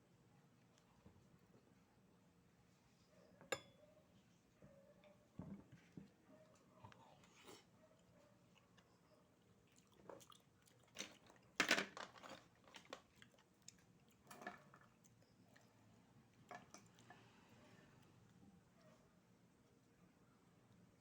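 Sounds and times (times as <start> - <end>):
eating crunching and clicking: 9.7 - 15.7.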